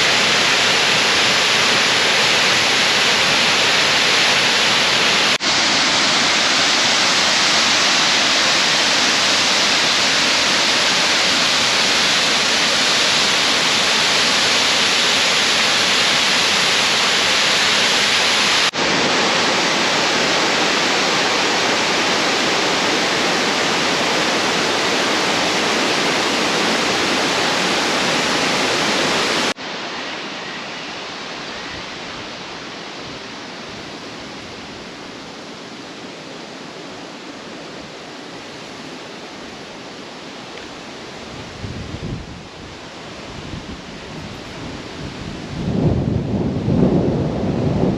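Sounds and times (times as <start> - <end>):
waterfall rushing: 0.0 - 45.5.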